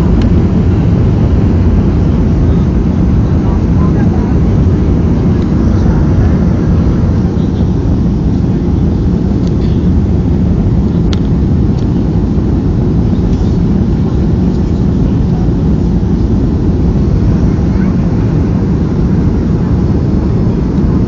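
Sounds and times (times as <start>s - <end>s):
jet cabin engine rumble: 0.0s - 21.0s.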